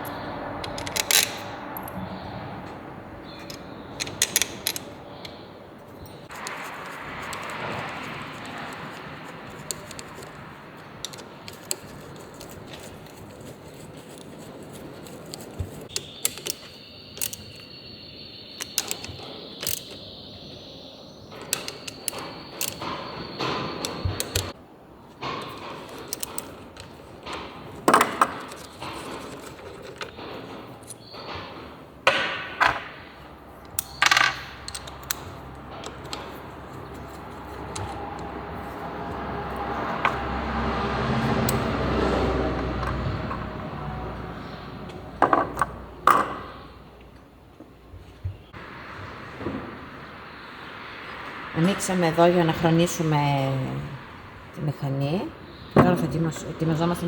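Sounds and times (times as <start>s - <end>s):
metal tools clinking and knocking: 0.0s - 2.0s, 3.2s - 17.7s, 18.6s - 20.1s, 21.4s - 24.5s, 25.3s - 41.8s.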